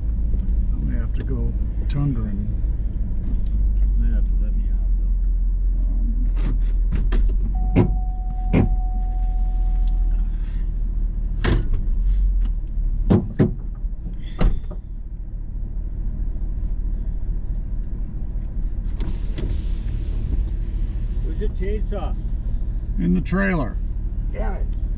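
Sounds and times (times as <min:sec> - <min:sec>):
car engine idling: 0:00.0 - 0:24.9
car door clunking: 0:06.4 - 0:09.2.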